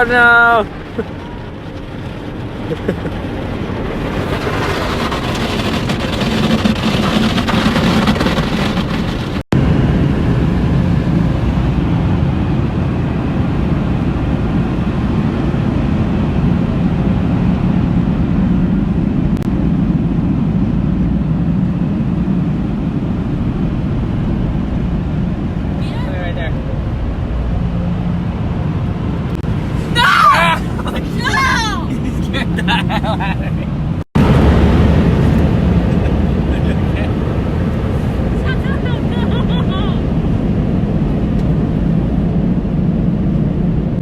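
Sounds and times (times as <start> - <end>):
car wash spray rushing: 0.0 - 9.5, 29.4 - 40.0
low rumble: 0.0 - 44.0.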